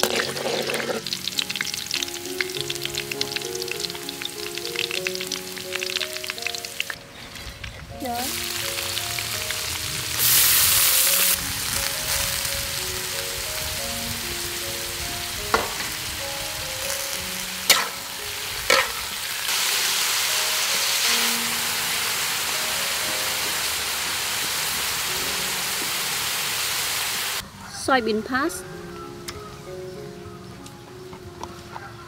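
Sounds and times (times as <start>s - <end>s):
ginger sizzling in hot oil: 0.0s - 27.4s
utensil knocking against wok: 15.5s - 15.9s, 17.7s - 18.0s.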